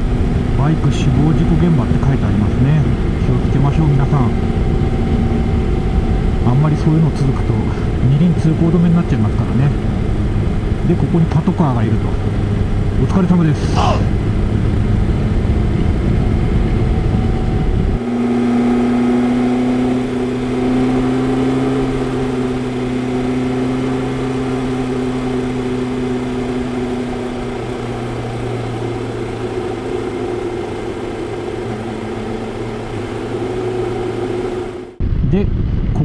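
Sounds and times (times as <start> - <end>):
motorcycle engine cruising: 0.0 - 35.2
heavy low rumble: 31.6 - 36.0.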